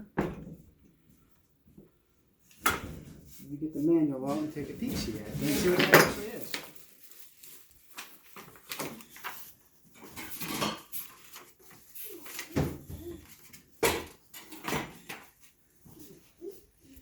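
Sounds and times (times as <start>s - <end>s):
paper rustling: 4.2s - 17.0s.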